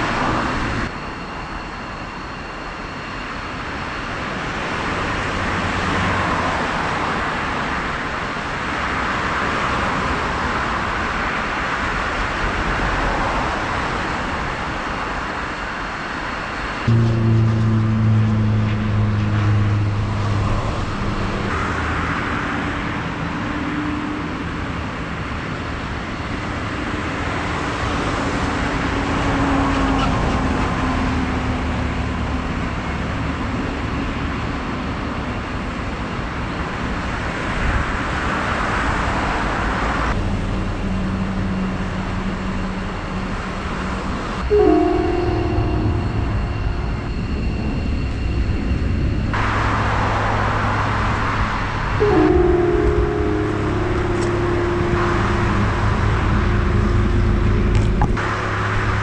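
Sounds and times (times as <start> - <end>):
car engine changing pitch: 44.5 - 59.0.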